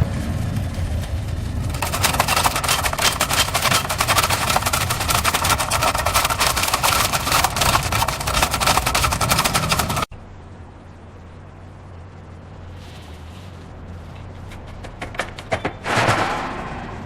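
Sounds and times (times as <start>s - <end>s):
dense rapid crackling: 0.0s - 10.1s
truck engine rumbling: 0.0s - 17.0s.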